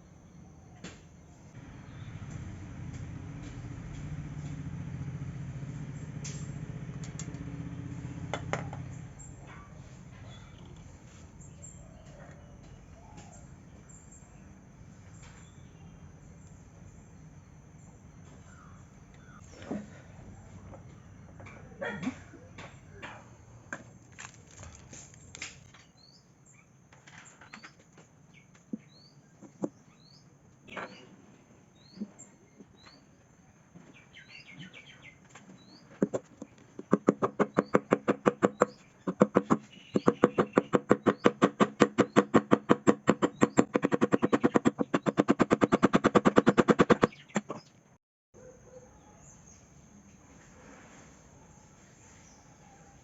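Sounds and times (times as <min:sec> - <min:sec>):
small bird chirping: 0:27.4 - 0:31.2, 0:33.8 - 0:49.8
rapid even knocks: 0:35.9 - 0:47.7.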